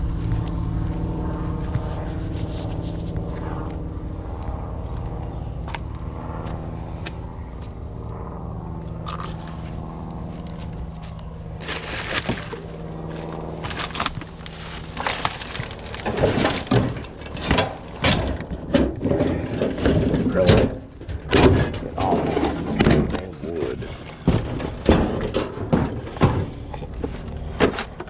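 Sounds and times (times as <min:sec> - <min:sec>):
vehicle engine humming: 0:00.0 - 0:28.0
clattering metal knocks and scrapes: 0:11.8 - 0:23.3, 0:24.1 - 0:28.0.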